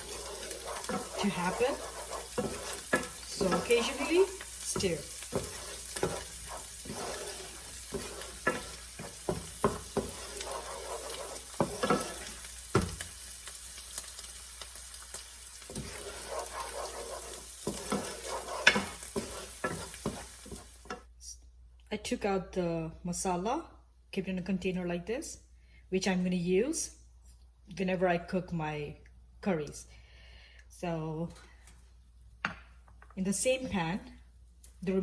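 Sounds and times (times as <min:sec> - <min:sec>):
spatula scraping and tapping pan: 0:00.0 - 0:13.2, 0:13.9 - 0:21.1
onion and spices sizzling in oil: 0:00.0 - 0:21.1.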